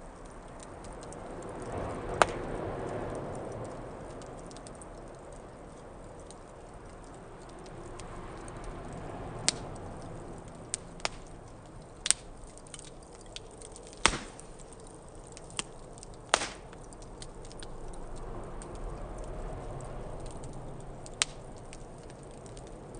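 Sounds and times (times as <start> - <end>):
burning wood popping and cracking: 0.0 - 22.9
wood fire hissing: 0.0 - 22.9.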